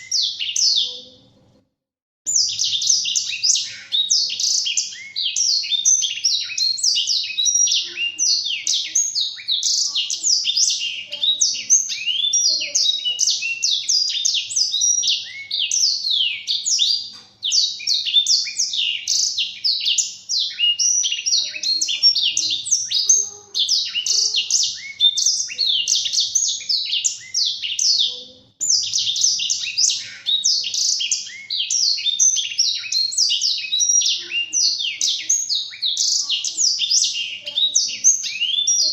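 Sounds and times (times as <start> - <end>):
canary singing a fast warble: 0.0 - 1.6, 2.3 - 38.9.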